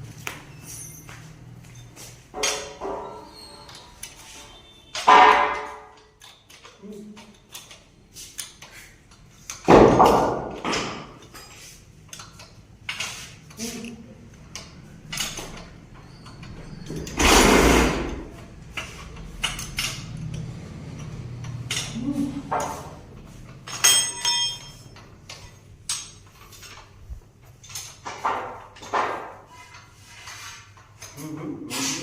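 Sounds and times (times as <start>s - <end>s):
metal clanks and knocks: 2.3s - 3.4s, 4.9s - 6.7s, 9.5s - 13.2s, 14.6s - 31.2s.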